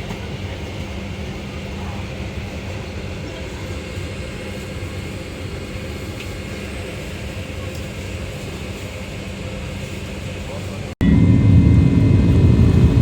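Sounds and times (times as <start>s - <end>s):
low hum: 11.0s - 13.0s
vehicle interior rumble: 11.0s - 13.0s.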